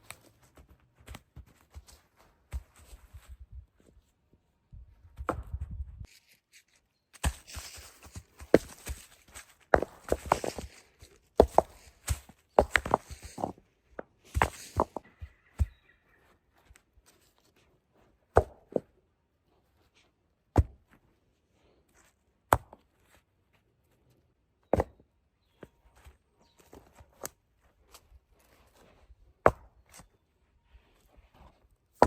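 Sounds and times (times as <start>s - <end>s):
light rustling and handling: 6.0s - 15.2s.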